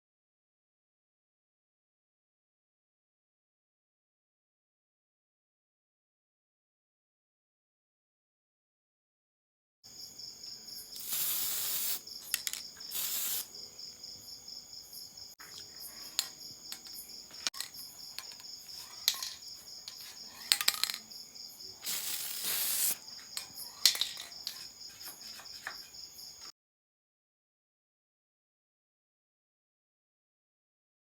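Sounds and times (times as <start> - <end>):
insects trilling: 9.9 - 26.5
bursts of hiss: 11.0 - 13.5, 21.8 - 23.0.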